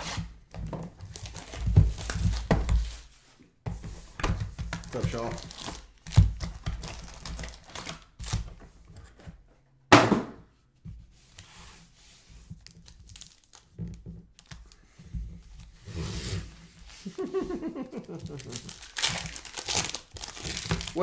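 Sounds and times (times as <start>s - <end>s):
wrapper crinkling and tearing: 1.0s - 2.5s, 4.8s - 8.4s, 12.6s - 14.8s, 18.0s - 21.0s.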